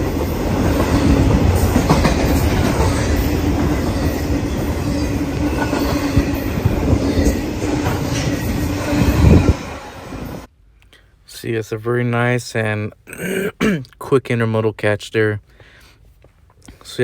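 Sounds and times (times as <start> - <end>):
freight train wheels clacking: 0.0 - 9.3
train rumble and hum: 0.0 - 10.5.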